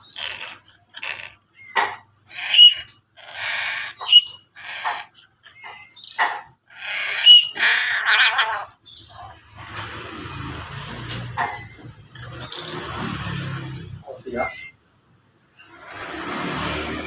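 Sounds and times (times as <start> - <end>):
crow harsh begging calls: 0.0 - 1.7, 2.3 - 5.2, 5.9 - 9.4.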